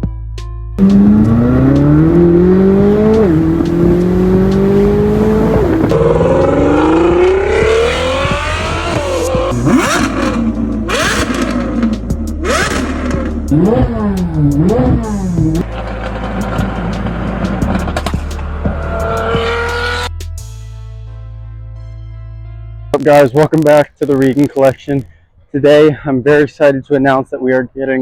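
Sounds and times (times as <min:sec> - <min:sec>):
vehicle engine accelerating: 0:00.8 - 0:20.2.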